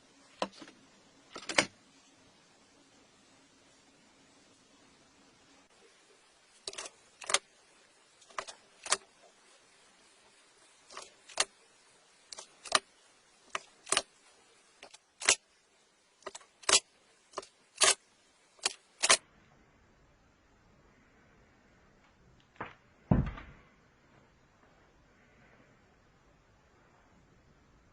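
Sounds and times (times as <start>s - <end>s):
sharp clicks in pairs: 18.6s - 19.2s.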